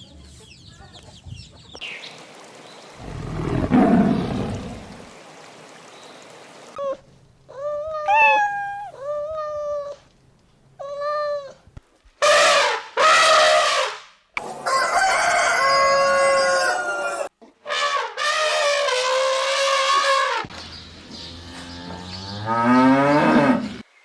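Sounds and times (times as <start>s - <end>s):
short animal calls: 8.1s - 9.0s
rooster crowing: 14.6s - 17.3s.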